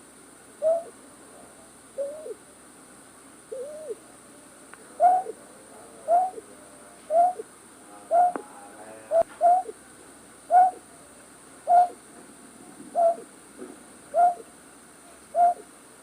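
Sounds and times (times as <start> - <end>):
night bird hooting: 0.6 - 1.0, 2.0 - 2.4, 3.5 - 4.0, 5.0 - 5.4, 6.0 - 6.5, 7.1 - 7.5, 8.1 - 8.4, 9.1 - 9.8, 10.5 - 10.9, 11.6 - 12.0, 12.9 - 13.3, 14.1 - 14.5, 15.3 - 15.7.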